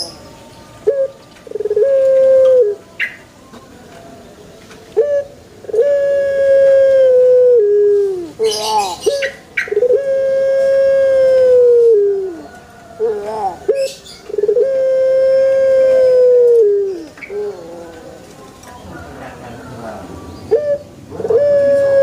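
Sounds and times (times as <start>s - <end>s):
dove cooing: 0.8s - 3.2s, 5.0s - 22.0s.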